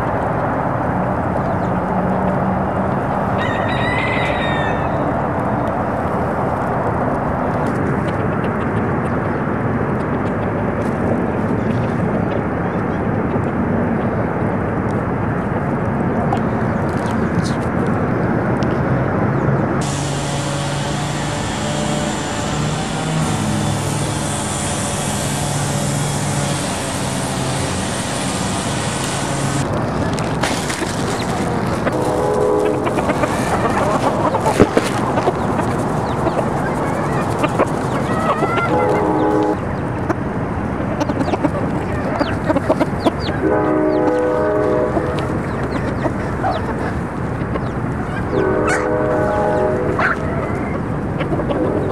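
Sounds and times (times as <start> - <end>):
loud steady rumbling: 18.3 - 51.9
traffic hiss: 19.7 - 51.9
vehicle engine running close by: 19.8 - 48.4.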